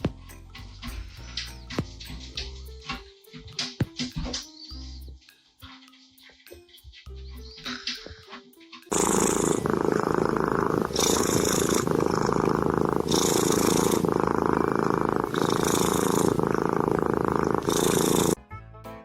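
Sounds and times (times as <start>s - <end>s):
cat purring loudly: 8.9s - 18.4s.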